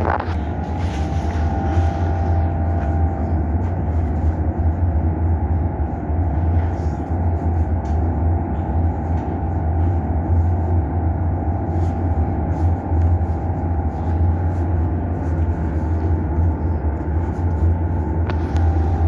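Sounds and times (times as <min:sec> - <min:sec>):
higher hum: 0:00.0 - 0:06.6, 0:11.4 - 0:19.0
low mechanical drone: 0:00.0 - 0:19.0.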